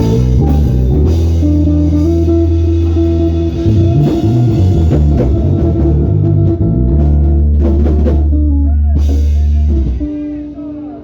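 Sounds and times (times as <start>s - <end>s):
drum kit: 0.0s - 10.7s
bass guitar: 0.0s - 11.0s
electric guitar: 0.0s - 11.0s.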